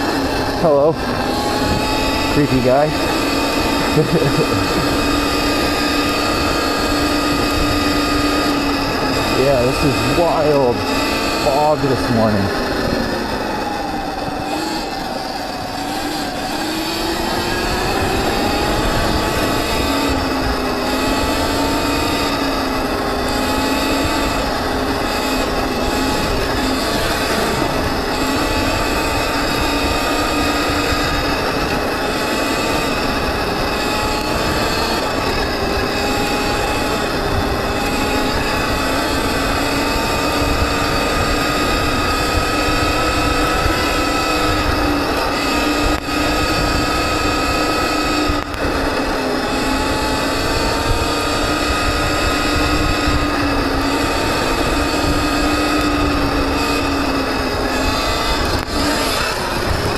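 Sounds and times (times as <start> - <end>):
electric motor whining: 0.0 - 59.9.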